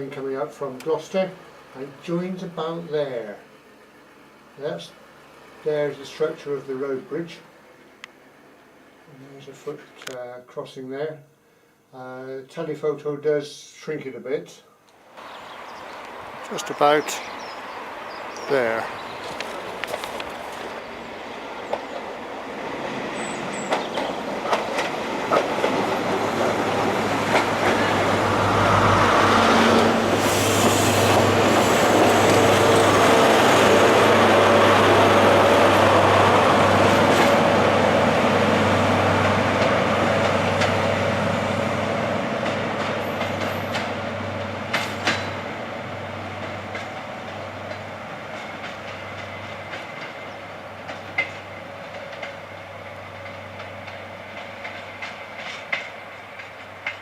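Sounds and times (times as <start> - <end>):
train engine hum: 0.7 - 9.6, 14.9 - 57.0
wheels clicking over rails: 15.2 - 41.0, 42.4 - 45.6, 46.4 - 57.0
train wheel noise: 15.2 - 57.0.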